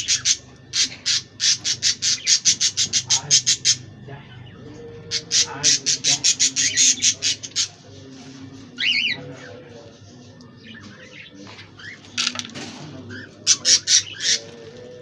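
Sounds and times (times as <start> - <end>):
budgerigars squawking: 0.0 - 7.8, 8.8 - 9.2, 13.1 - 14.7
faint flock chatter: 0.0 - 15.0.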